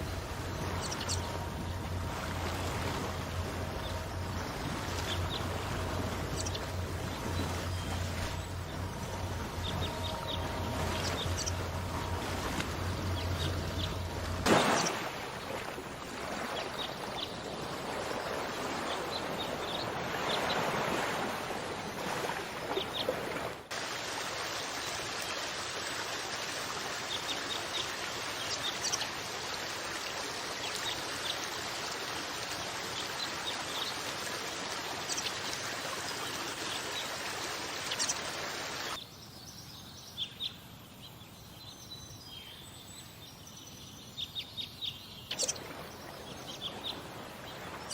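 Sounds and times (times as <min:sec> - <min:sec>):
running water rushing: 0:00.0 - 0:39.0, 0:45.3 - 0:47.9
small birds chirping: 0:03.7 - 0:11.9, 0:12.9 - 0:15.0, 0:35.0 - 0:47.9.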